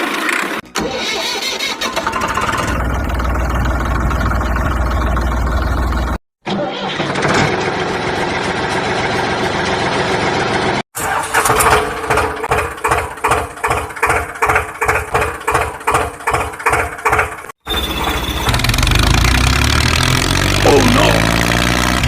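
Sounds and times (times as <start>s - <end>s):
engine running: 2.4s - 6.2s, 7.5s - 11.6s, 17.8s - 22.0s.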